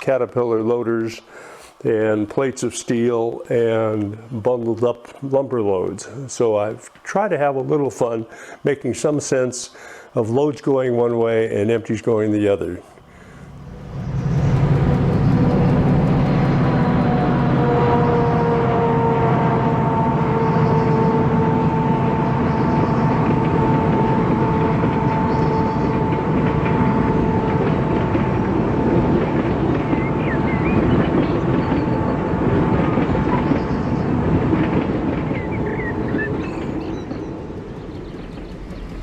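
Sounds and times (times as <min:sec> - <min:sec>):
train rumbling: 0:00.0 - 0:39.0
birds chirping: 0:22.3 - 0:27.8, 0:28.7 - 0:39.0.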